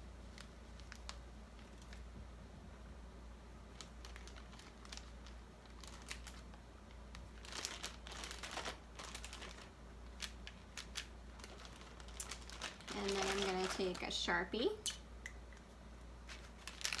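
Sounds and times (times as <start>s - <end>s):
paper bag crinkling: 3.7s - 14.4s, 16.2s - 17.0s.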